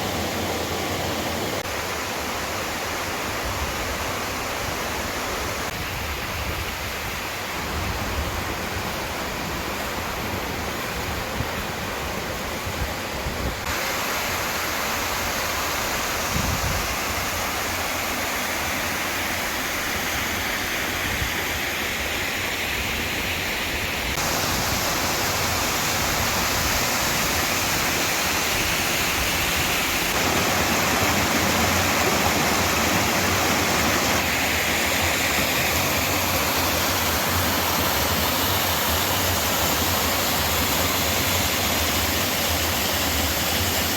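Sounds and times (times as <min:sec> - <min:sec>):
waterfall pouring: 0:24.2 - 0:43.9.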